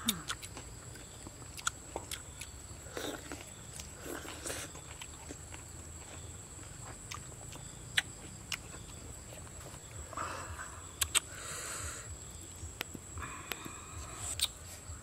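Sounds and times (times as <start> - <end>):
mouth clicks: 0.0 - 5.4, 7.1 - 9.0, 10.1 - 14.7
chewing and lip-smacking: 0.0 - 10.0, 10.9 - 11.4, 12.3 - 14.8.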